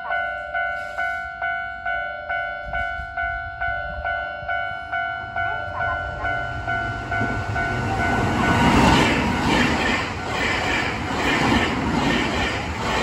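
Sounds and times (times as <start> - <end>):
two-tone level-crossing bell: 0.0 - 8.8
train wheels clacking over rail joints: 8.1 - 13.0.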